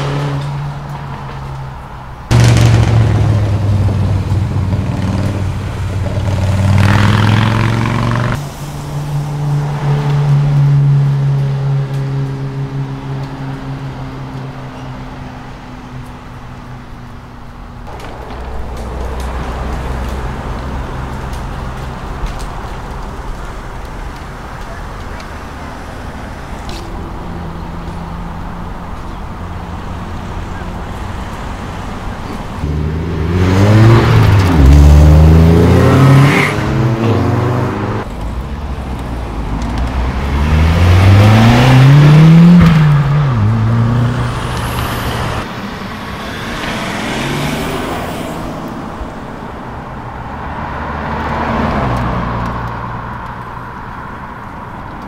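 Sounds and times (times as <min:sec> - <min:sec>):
cars accelerating hard: 0:00.0 - 0:00.9, 0:02.3 - 0:14.6, 0:25.8 - 0:49.3, 0:50.0 - 0:53.4
car engines idling: 0:00.0 - 0:33.2.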